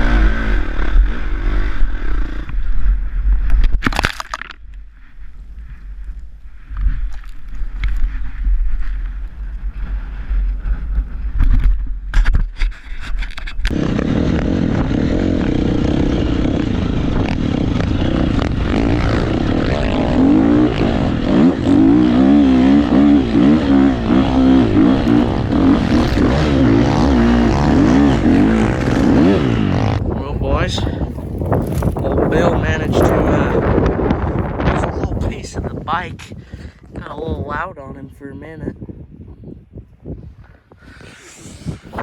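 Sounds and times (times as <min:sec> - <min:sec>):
dirt bike engine revving: 0:00.0 - 0:03.2, 0:13.7 - 0:35.6.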